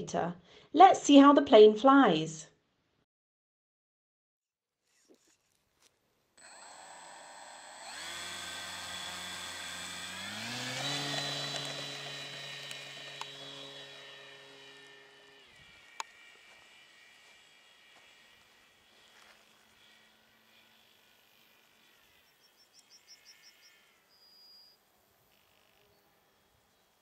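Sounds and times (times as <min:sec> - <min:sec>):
electric motor whine: 0:06.4 - 0:27.0.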